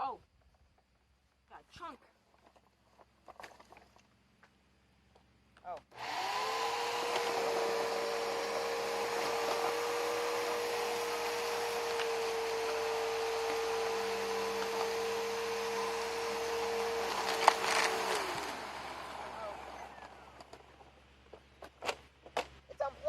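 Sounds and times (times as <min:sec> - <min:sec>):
vacuum cleaner motor whining: 0:06.0 - 0:20.6.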